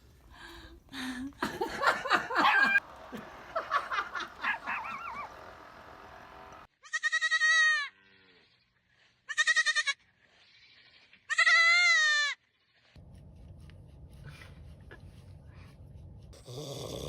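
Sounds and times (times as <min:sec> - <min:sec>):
goat bleating: 0:06.8 - 0:08.2, 0:09.3 - 0:10.0, 0:10.7 - 0:12.4.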